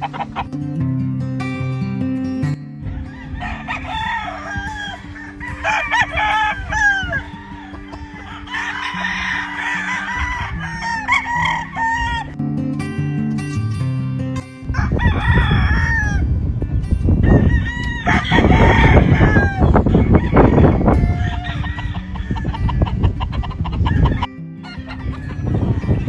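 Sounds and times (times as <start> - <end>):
flock of chickens: 0.0 - 0.5, 2.9 - 12.4, 14.8 - 16.2, 17.2 - 26.0
roosters crowing: 0.0 - 0.5, 2.8 - 12.4, 14.7 - 16.5, 17.2 - 26.0.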